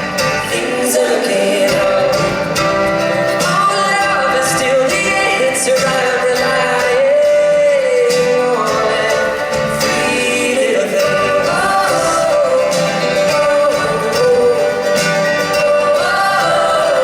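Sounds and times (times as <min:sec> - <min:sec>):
live band music: 0:00.0 - 0:17.0
person singing long notes: 0:00.4 - 0:17.0.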